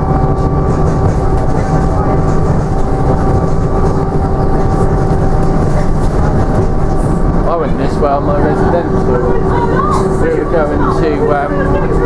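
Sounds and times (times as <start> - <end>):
bus engine and road noise: 0.0 - 12.0
drivetrain whine: 0.0 - 12.0.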